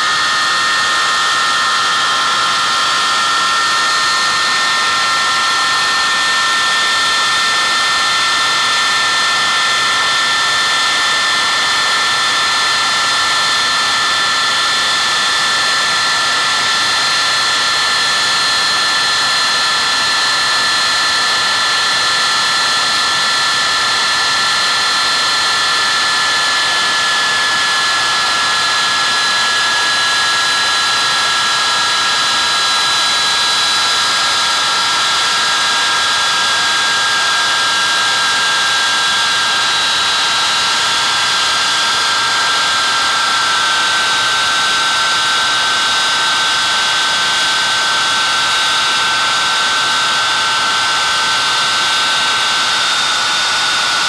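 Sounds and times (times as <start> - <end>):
loud jet engine whining: 0.0 - 54.0.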